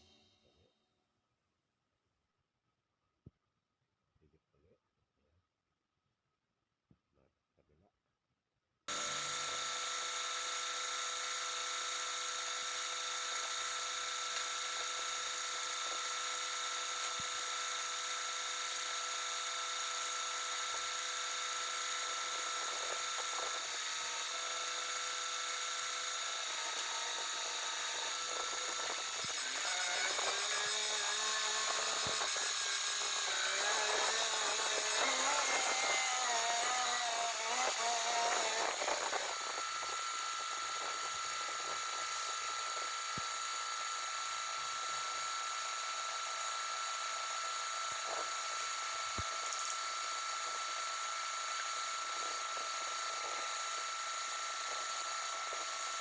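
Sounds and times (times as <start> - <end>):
small electric motor whining: 8.9 - 56.0.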